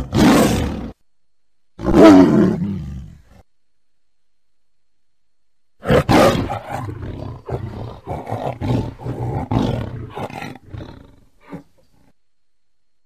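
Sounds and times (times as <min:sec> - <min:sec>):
tiger roaring: 0:00.0 - 0:01.0, 0:01.8 - 0:03.4, 0:05.8 - 0:12.2.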